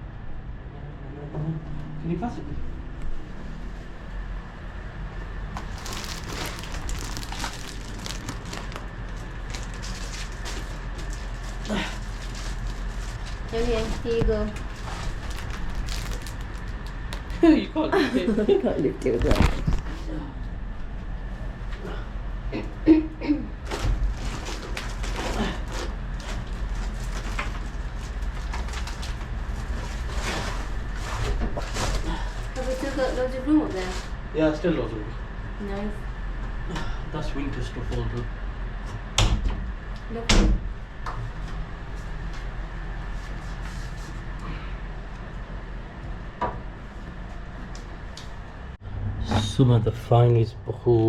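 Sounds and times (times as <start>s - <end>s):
steady low hum: 0.0s - 51.0s
plastic bags crinkling: 5.5s - 17.4s, 23.7s - 31.8s.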